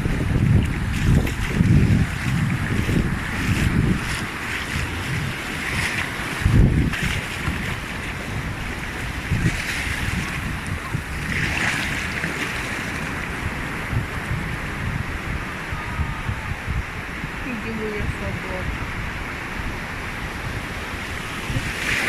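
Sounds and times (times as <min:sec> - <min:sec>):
surf washing on sandy beach: 0:00.0 - 0:22.0
wind buffeting microphone: 0:00.0 - 0:22.0.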